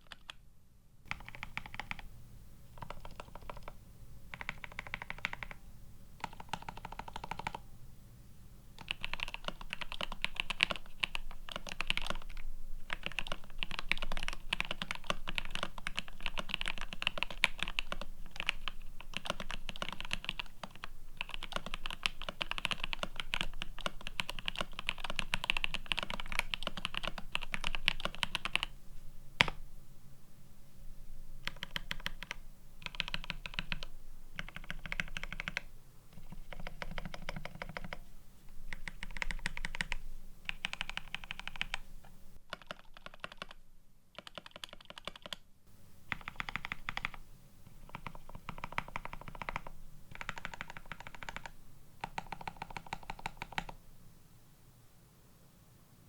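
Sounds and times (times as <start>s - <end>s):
mechanical keyboard typing: 0.0s - 0.4s, 1.1s - 2.1s, 2.7s - 5.6s, 6.2s - 7.6s, 8.8s - 28.7s, 31.4s - 38.0s, 38.7s - 43.6s, 44.2s - 45.4s, 46.1s - 53.8s.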